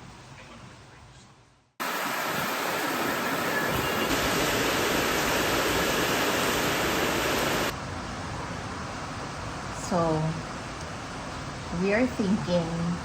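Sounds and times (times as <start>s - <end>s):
heavy rain pouring: 1.8s - 8.3s.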